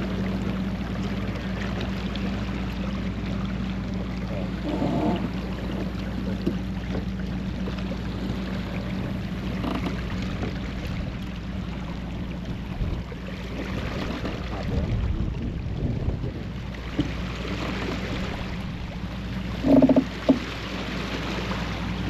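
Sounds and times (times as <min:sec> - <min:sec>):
low steady hum: 0:00.0 - 0:22.0
water rushing along hull: 0:00.0 - 0:22.0
wind on microphone: 0:12.2 - 0:16.8.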